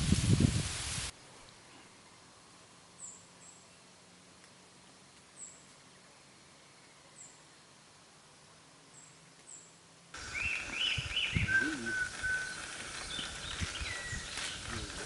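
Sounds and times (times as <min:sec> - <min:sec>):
arched bird chirps: 0:09.0 - 0:14.7
high thin bird chirps: 0:09.0 - 0:14.7
short whistled bird notes: 0:10.3 - 0:14.6.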